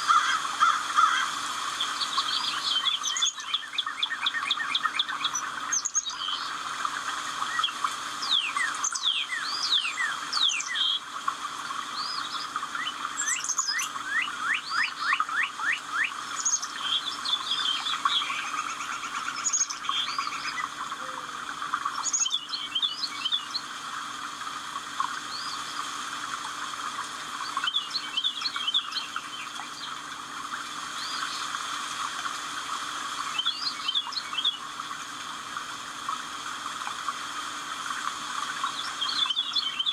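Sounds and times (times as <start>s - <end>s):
birds chirping and singing: 16.4s - 23.7s.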